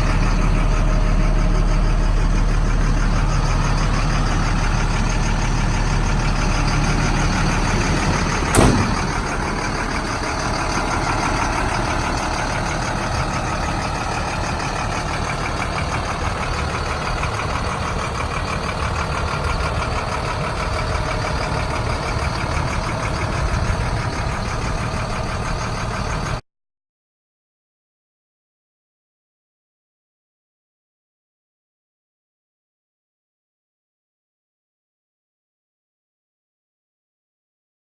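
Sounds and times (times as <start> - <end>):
diesel truck engine running: 0.0 - 26.4
sharp clunk: 8.4 - 9.6.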